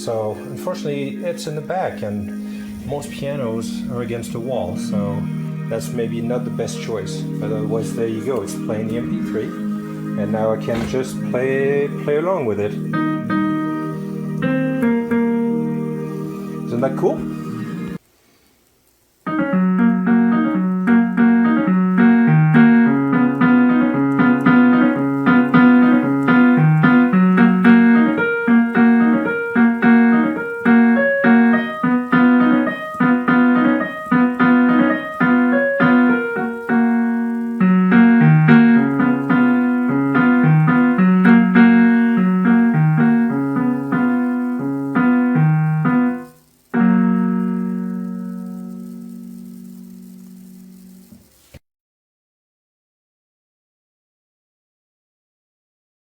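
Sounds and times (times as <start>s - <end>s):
piano piece: 0.0s - 18.0s, 19.2s - 51.4s.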